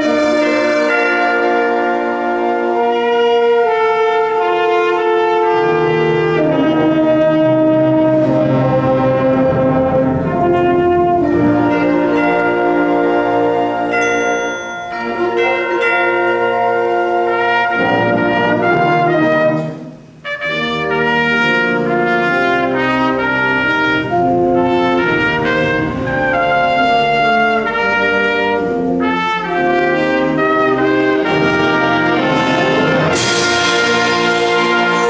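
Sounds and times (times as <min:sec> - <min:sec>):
concert band playing chords: 0:00.0 - 0:35.0
cymbal crash: 0:33.2 - 0:35.0.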